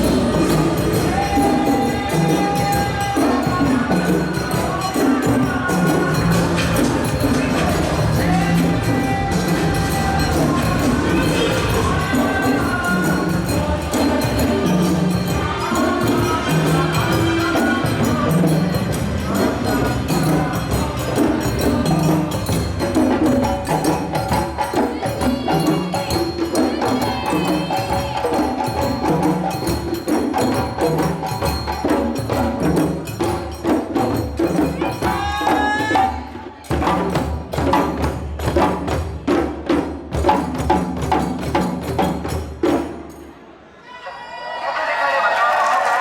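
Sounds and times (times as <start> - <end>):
clicking and jingling percussion: 0.0 - 39.3
hand drums playing fast rhythm: 0.0 - 43.2.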